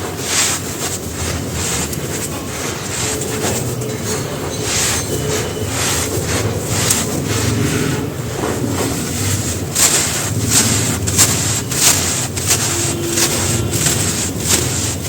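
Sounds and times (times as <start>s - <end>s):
sand-cement chunks crumbling: 0.0s - 15.0s.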